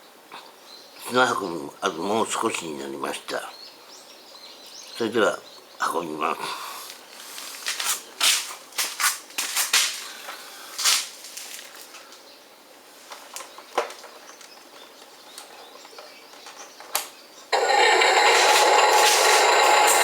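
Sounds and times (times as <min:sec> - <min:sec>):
loud steady noise: 0:17.6 - 0:20.0
sand and grit scraping: 0:17.6 - 0:20.0.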